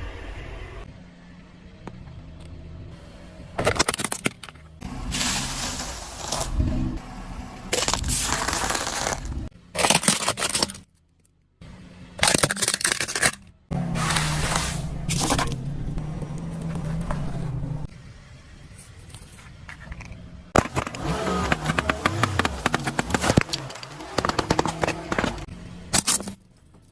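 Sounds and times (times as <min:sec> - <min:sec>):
objects crunching under car: 0:07.7 - 0:10.8, 0:19.8 - 0:26.5.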